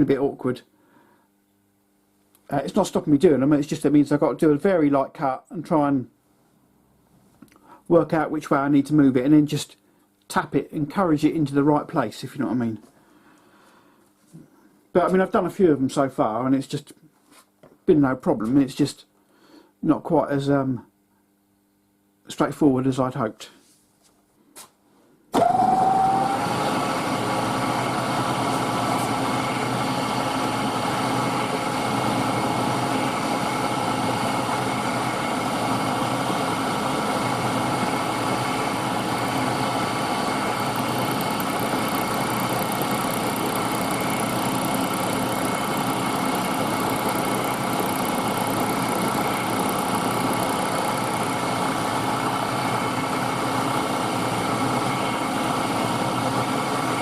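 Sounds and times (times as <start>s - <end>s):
milling machine running: 25.4s - 57.0s.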